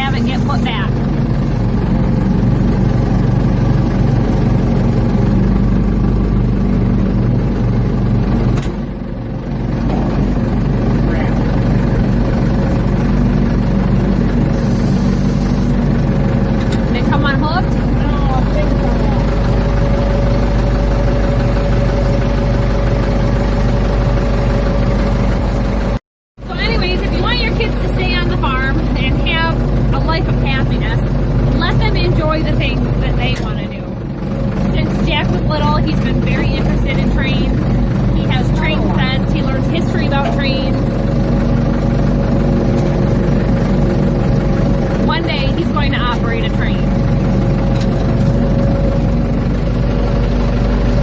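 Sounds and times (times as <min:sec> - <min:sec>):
diesel engine running: 0:00.0 - 0:51.0
steady tone: 0:34.6 - 0:41.5, 0:42.1 - 0:50.1.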